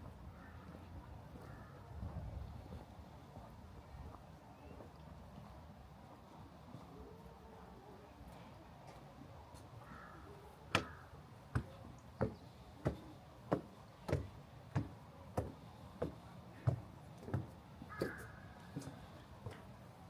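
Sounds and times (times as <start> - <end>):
footsteps walking: 11.6 - 19.7.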